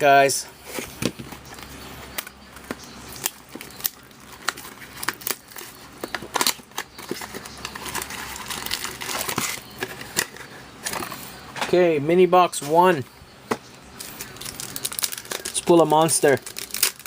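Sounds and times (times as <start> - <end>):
plastic wrap crinkling and tearing: 3.2 - 10.4, 14.0 - 17.0.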